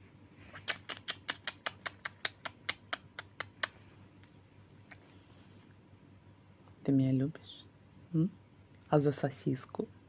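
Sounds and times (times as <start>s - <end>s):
smacking kisses: 0.5s - 5.1s.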